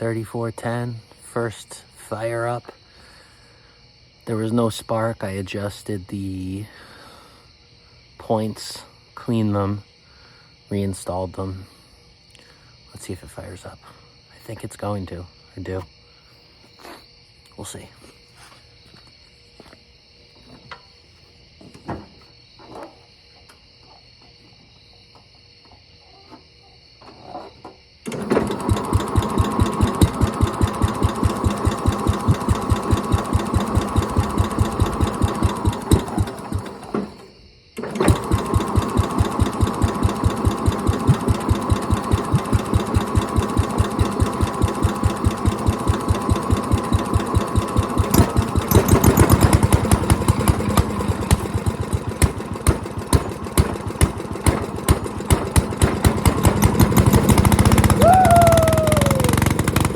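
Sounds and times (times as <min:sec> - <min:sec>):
small engine starting and running: 0:28.0 - 0:59.9.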